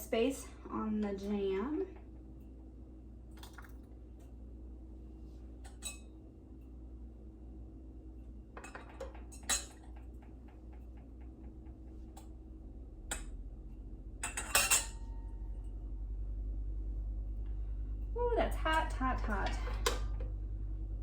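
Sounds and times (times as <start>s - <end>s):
low steady hum: 0.0s - 21.0s
metal utensils clinking on glass jars: 14.2s - 15.0s.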